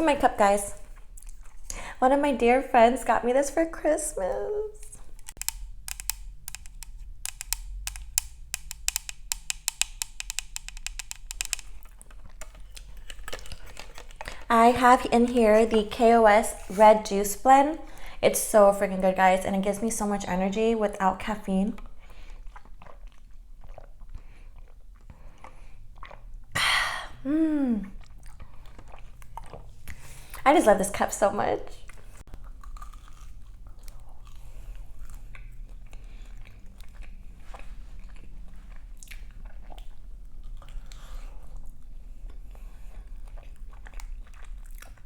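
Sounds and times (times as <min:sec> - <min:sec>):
mouth chewing sounds: 0:00.7 - 0:02.0, 0:04.9 - 0:14.5, 0:21.7 - 0:30.5, 0:31.7 - 0:45.0
wordless hum: 0:03.8 - 0:12.8.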